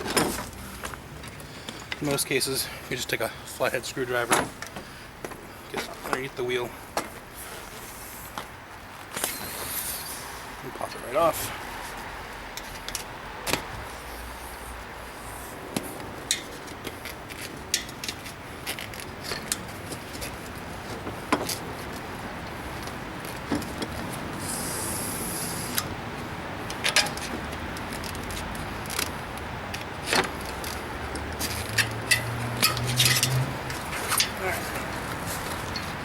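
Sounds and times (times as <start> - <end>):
short air hiss: 9.2 - 10.3, 24.4 - 25.8
metallic clicks and clinks: 29.7 - 34.4.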